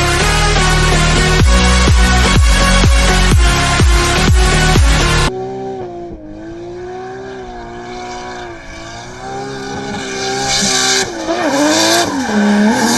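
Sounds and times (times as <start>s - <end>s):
car engine running: 0.0s - 12.9s.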